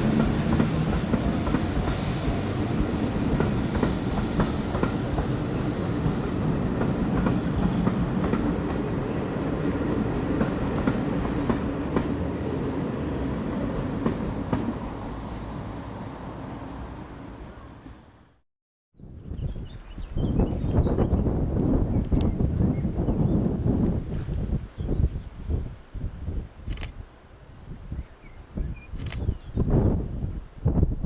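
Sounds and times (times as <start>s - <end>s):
train wheels clicking over rail joints: 0.0s - 9.0s, 10.2s - 12.3s, 13.9s - 14.8s
train rumble: 0.0s - 18.2s.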